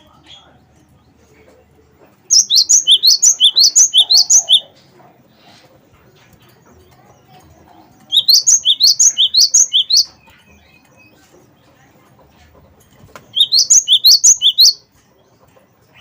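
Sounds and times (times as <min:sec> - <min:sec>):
bird singing rapid high song: 0:02.3 - 0:04.7, 0:06.8 - 0:11.7, 0:13.3 - 0:15.3.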